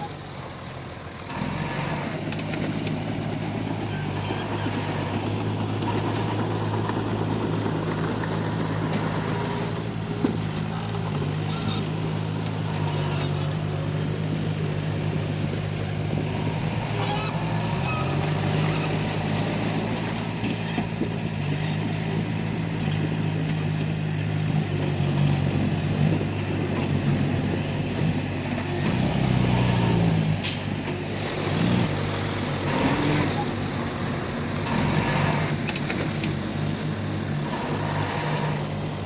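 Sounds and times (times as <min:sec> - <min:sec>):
bulldozer diesel engine running: 0:00.0 - 0:39.0.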